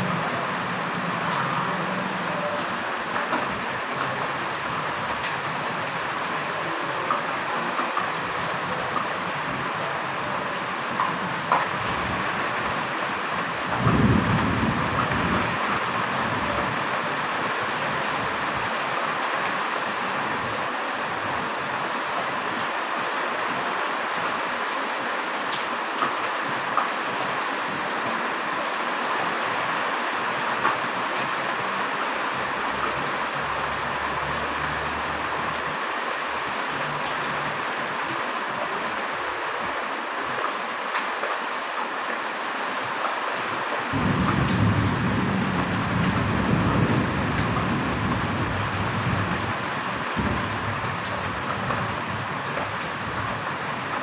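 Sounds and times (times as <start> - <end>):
heavy rain: 0.0 - 54.0
thunder rumbling: 13.7 - 16.9, 43.9 - 53.4.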